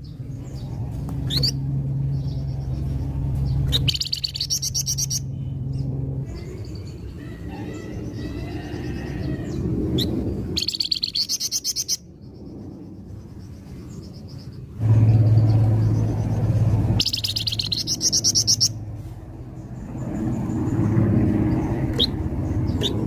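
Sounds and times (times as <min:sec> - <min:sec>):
low rumble: 0:00.0 - 0:11.2, 0:12.0 - 0:23.0
steady low hum: 0:00.0 - 0:23.0
songbird trilling: 0:01.2 - 0:02.9, 0:03.5 - 0:05.6, 0:06.3 - 0:12.1, 0:17.0 - 0:18.8.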